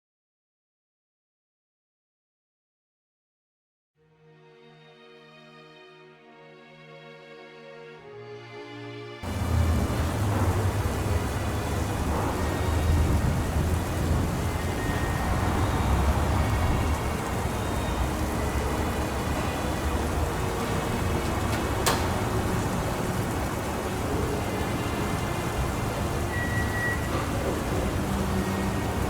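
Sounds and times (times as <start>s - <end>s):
heavy rain: 9.2s - 29.0s
thunder rumbling: 9.2s - 29.0s.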